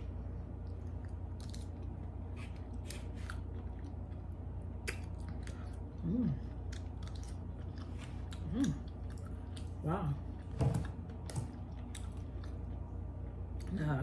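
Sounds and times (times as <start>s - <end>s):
person chewing wetly: 0.6s - 10.5s, 11.1s - 12.9s
person humming mmm: 6.0s - 6.6s, 8.4s - 8.9s.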